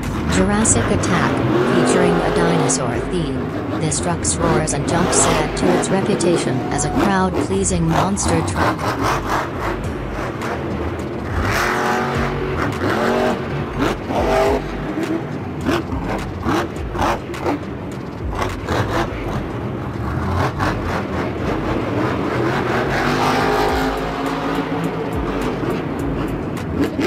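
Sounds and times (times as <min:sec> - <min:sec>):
truck engine revving: 0:00.0 - 0:27.0.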